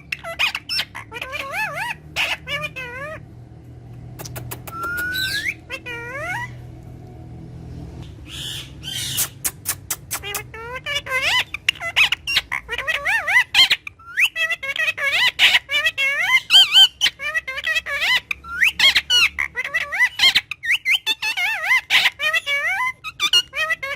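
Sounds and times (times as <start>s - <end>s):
parrot warbling chatter: 0.0s - 3.4s, 4.2s - 6.7s, 8.2s - 23.9s
parrot clicks: 4.2s - 5.2s
parrot rising whistle: 4.6s - 6.5s.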